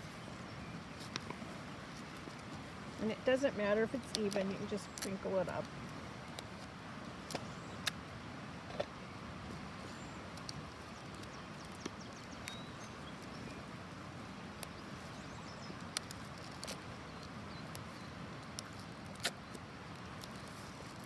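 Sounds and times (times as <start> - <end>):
small clicks: 4.0 - 5.7, 15.8 - 21.0.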